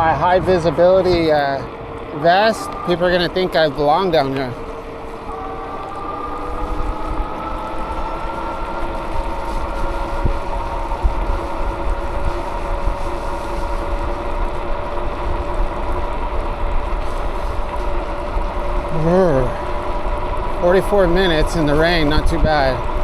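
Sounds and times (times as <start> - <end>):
steady rising whine: 0.0 - 23.0
wind buffeting microphone: 0.0 - 23.0.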